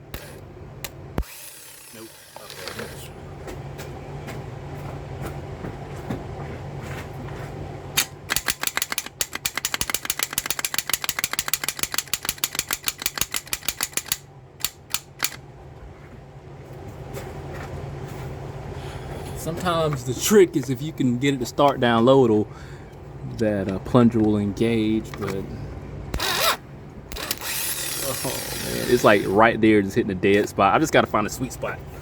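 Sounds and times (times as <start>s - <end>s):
steady low hum: 0.0s - 32.0s
starter solenoid clicking: 8.0s - 15.4s.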